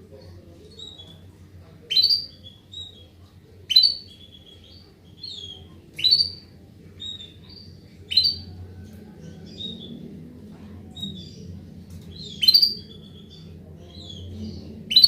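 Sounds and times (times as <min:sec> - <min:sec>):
canary calling: 0:01.9 - 0:08.6, 0:12.1 - 0:15.0.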